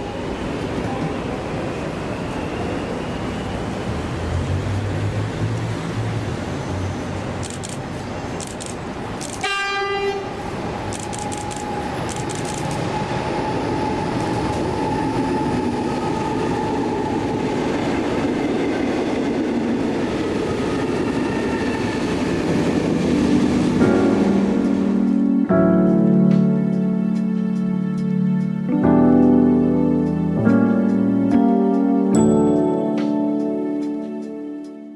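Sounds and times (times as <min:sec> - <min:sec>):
train rumbling past: 0:00.0 - 0:34.8
train horn blast: 0:09.4 - 0:10.4
sharp wheel clicks: 0:11.0 - 0:12.8.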